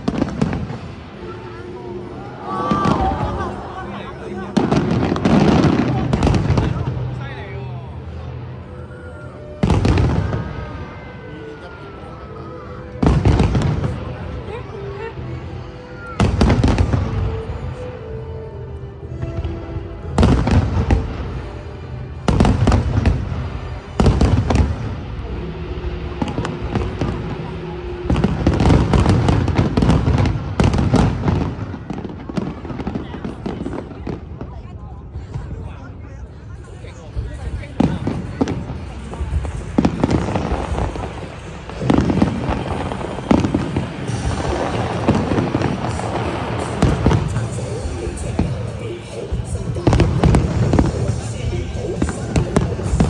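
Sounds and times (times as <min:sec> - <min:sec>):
fireworks bursting: 0:00.0 - 0:07.3, 0:22.2 - 0:34.6, 0:37.1 - 0:53.0.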